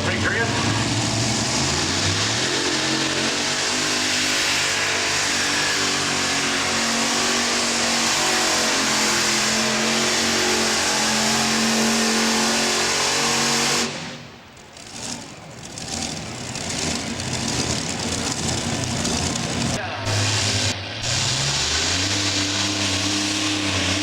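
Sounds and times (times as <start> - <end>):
tractor engine droning under load: 0.0 - 24.0.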